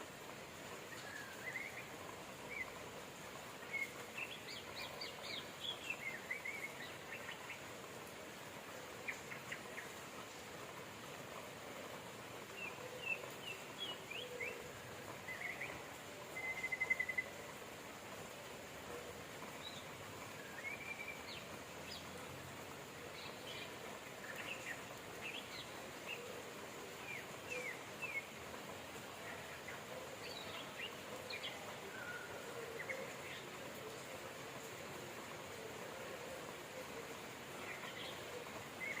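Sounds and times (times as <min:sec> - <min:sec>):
rain hissing: 0:00.0 - 0:39.0
small birds chirping: 0:19.4 - 0:34.9.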